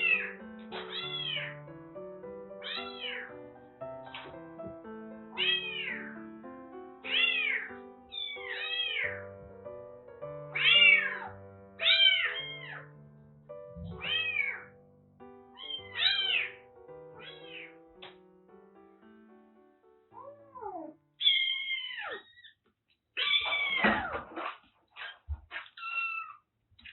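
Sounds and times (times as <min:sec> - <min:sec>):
kitten meowing: 0:00.0 - 0:01.6, 0:02.6 - 0:03.3, 0:05.4 - 0:06.1, 0:07.0 - 0:09.2, 0:10.5 - 0:12.9, 0:13.8 - 0:14.7, 0:15.6 - 0:16.6, 0:17.2 - 0:17.8, 0:20.2 - 0:22.6, 0:23.2 - 0:24.1, 0:25.8 - 0:26.4.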